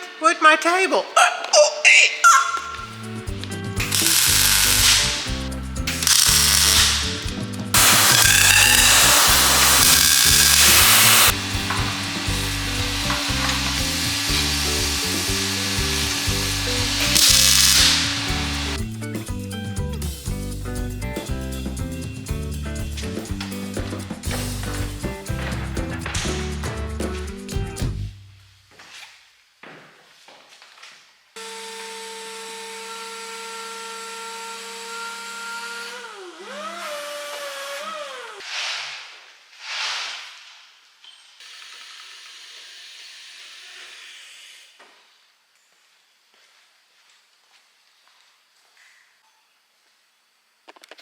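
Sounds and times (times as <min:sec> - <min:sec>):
background music with bass line: 0:02.8 - 0:28.2
metalworking tool hissing: 0:03.8 - 0:18.8, 0:41.4 - 0:45.2.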